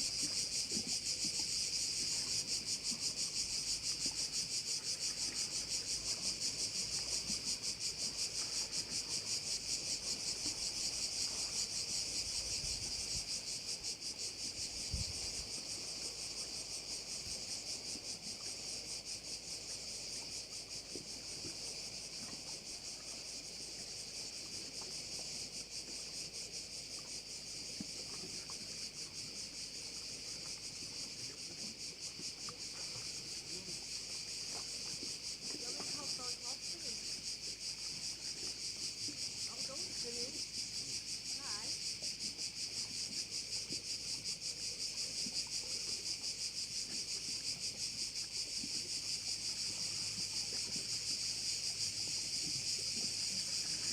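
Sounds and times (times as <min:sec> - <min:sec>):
cicadas buzzing: 0:00.0 - 0:53.9.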